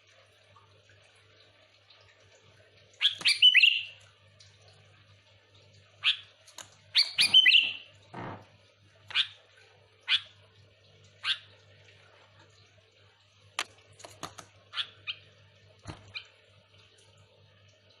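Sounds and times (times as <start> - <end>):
bird call notes: 3.0 - 3.9, 7.0 - 7.9.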